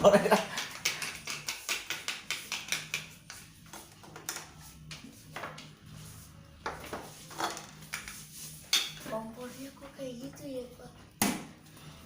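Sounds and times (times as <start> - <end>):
utensils tapping a bowl: 0.5 - 5.6.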